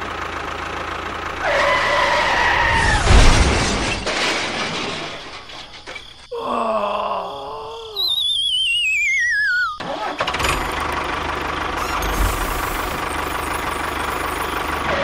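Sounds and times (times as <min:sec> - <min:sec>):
mechanical engine running with rumble: 0:00.0 - 0:02.5, 0:09.8 - 0:15.0
warbling whistle sliding downward: 0:08.0 - 0:09.8.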